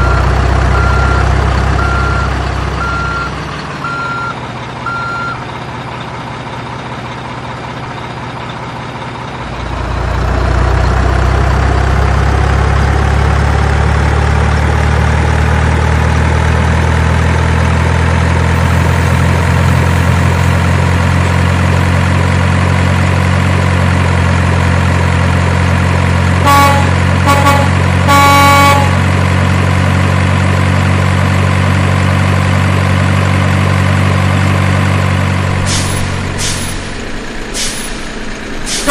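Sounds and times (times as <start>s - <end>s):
truck engine running: 0.0s - 38.9s
truck horn toots: 26.4s - 29.2s.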